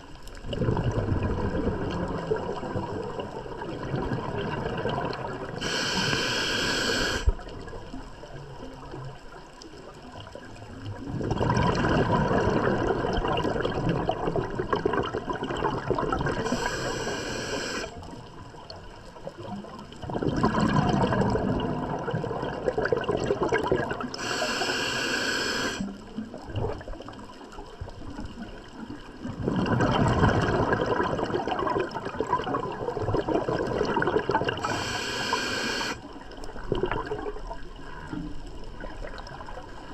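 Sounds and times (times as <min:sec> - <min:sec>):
rush of exhaled bubbles: 0:00.4 - 0:08.0, 0:10.9 - 0:18.3, 0:19.3 - 0:27.5, 0:29.2 - 0:38.2
hissing regulator inhalations: 0:05.6 - 0:07.4, 0:16.4 - 0:18.0, 0:24.2 - 0:25.9, 0:34.6 - 0:36.0.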